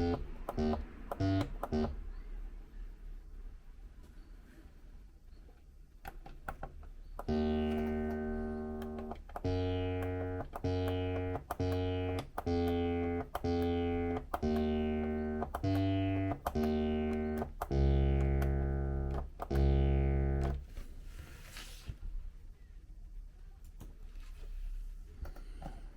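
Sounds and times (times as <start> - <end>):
acid bass synthesizer notes: 0.0 - 2.0, 7.2 - 20.6.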